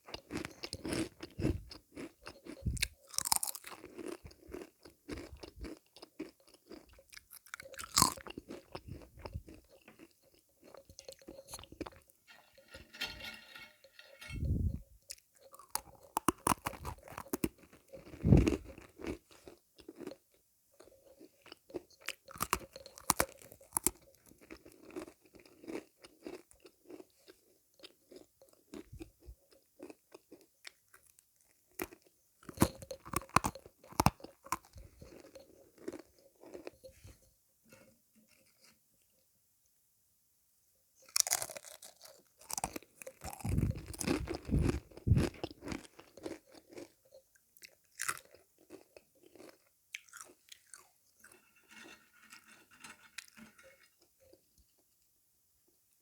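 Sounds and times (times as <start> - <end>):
crunching sweets: 0.0 - 14.4, 15.5 - 27.2, 41.0 - 47.0, 47.6 - 51.8.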